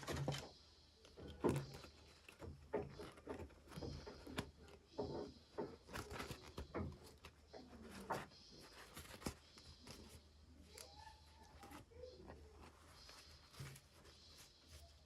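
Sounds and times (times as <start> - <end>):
packaging rustling: 5.8 - 15.0.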